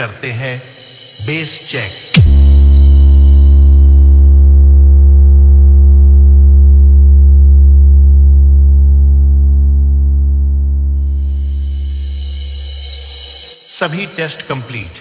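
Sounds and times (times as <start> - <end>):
deep bass test tone: 2.2 - 13.2.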